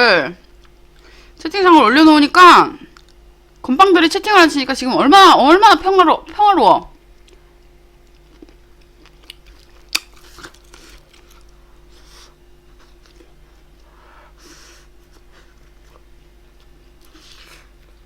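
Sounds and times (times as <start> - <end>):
person chewing: 0.4 - 1.1, 2.9 - 3.2, 7.1 - 14.0, 15.1 - 18.0.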